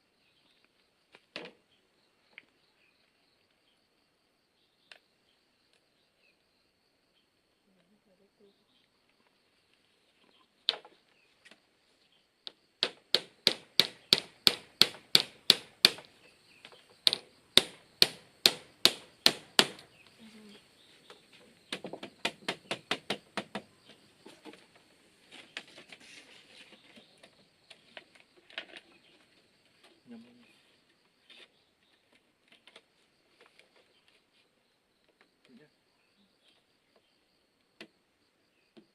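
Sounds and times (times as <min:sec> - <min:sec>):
hand tool striking bamboo: 0:12.8 - 0:19.9, 0:21.7 - 0:23.7.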